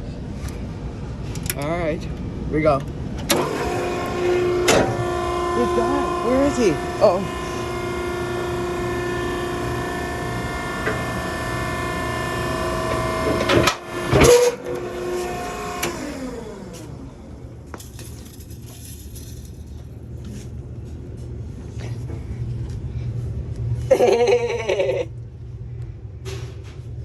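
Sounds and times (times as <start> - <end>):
hydraulic pump motor whining: 3.1 - 20.2
loud clunks: 3.2 - 16.9.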